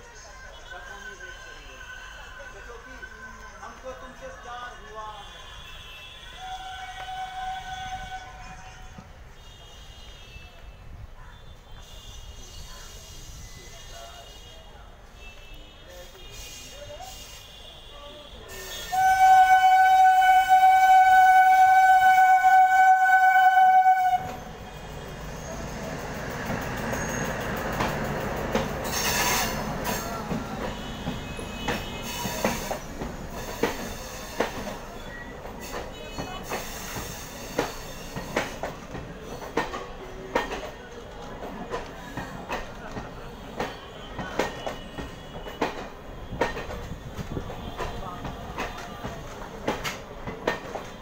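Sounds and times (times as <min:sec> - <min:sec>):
train horn blast: 0:05.5 - 0:08.7, 0:17.4 - 0:24.5
train rumbling past: 0:18.5 - 0:51.0
wheels clicking over rail joints: 0:26.2 - 0:51.0.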